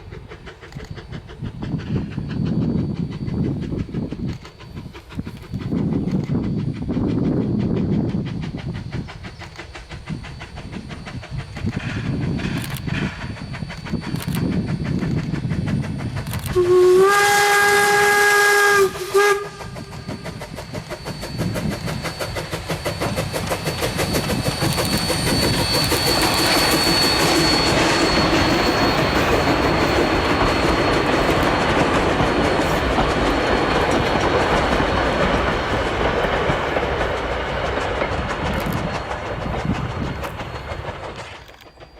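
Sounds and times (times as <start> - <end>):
steam locomotive rhythmic beat: 0.0 - 41.9
steam whistle blasts: 16.3 - 31.7.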